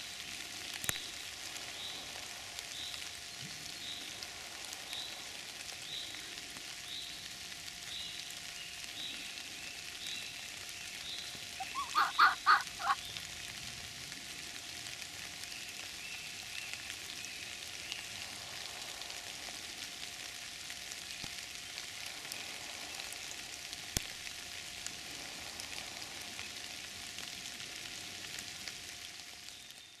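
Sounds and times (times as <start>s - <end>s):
heavy rain on leaves: 0.0s - 30.0s
short pitched calls: 11.6s - 13.1s.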